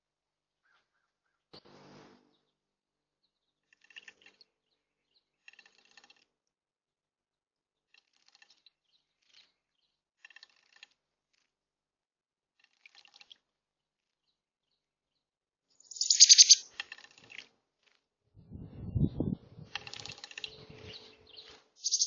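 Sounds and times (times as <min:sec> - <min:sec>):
small birds chirping: 0:08.4 - 0:10.1, 0:14.2 - 0:17.4, 0:18.7 - 0:22.0.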